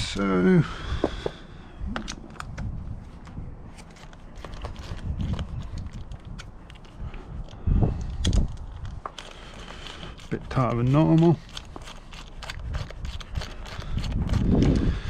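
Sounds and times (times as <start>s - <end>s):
wind rumble on microphone: 0.0s - 9.1s, 12.4s - 15.0s.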